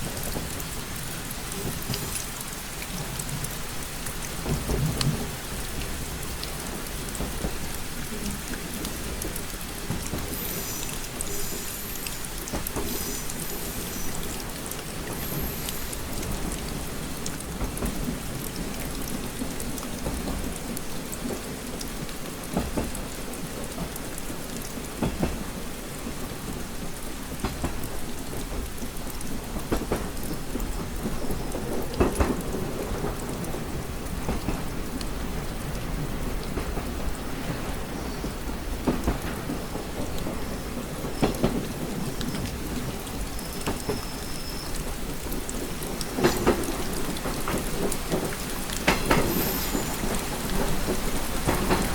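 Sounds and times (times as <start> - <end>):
rain pattering on window glass: 0.0 - 51.9.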